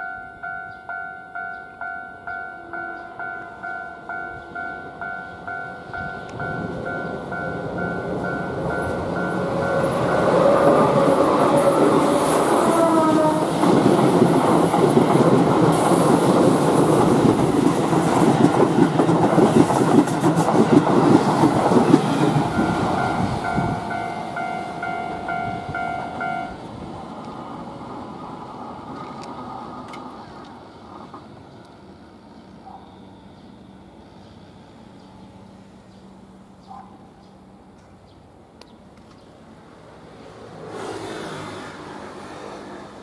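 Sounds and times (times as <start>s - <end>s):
level crossing warning bell: 0.0s - 11.0s, 22.4s - 26.6s
electric train passing: 0.0s - 43.0s
wheels clacking over rail joints: 5.4s - 31.8s.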